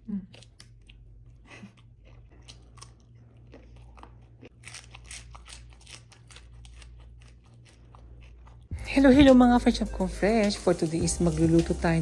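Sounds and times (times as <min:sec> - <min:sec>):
cucumber crunching: 0:00.1 - 0:08.7
chewing with wet smacking: 0:00.3 - 0:08.7.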